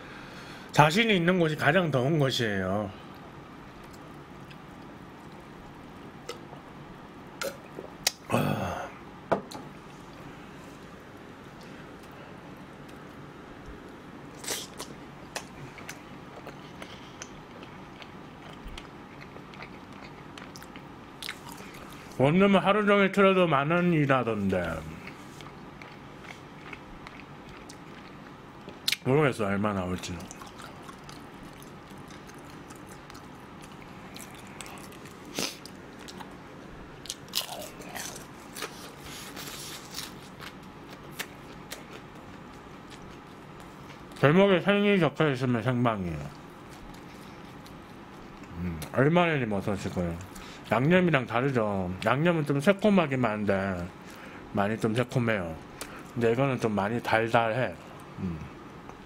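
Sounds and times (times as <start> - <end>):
crunchy bite: 14.3 - 16.6
chewing mouth sounds: 14.4 - 22.2, 24.6 - 29.0, 30.0 - 36.4.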